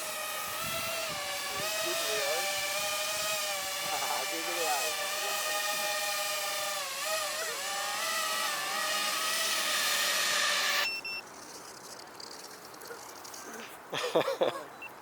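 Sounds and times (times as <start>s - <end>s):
electric motors and propellers whining: 0.0s - 11.0s.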